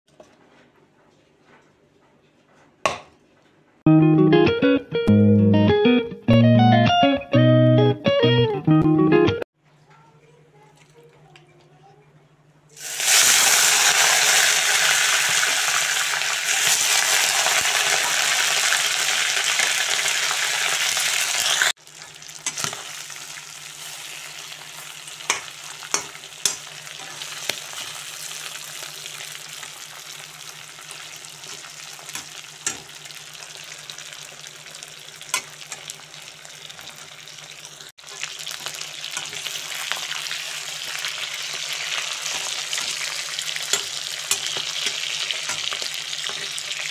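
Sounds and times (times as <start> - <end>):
chicken sizzling in hot oil: 12.8 - 46.9.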